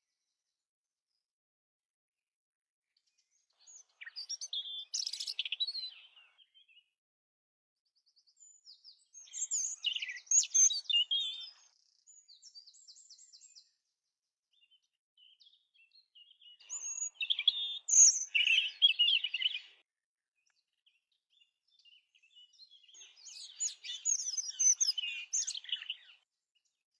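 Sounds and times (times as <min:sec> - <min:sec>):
robin singing: 0:03.2 - 0:06.9, 0:08.0 - 0:13.8, 0:14.5 - 0:19.8, 0:20.4 - 0:26.8.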